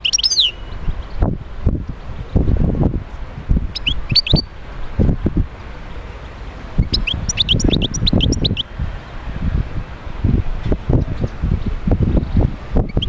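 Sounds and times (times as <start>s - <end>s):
goldfinch singing: 0.0s - 1.2s, 3.7s - 4.5s, 6.8s - 8.7s.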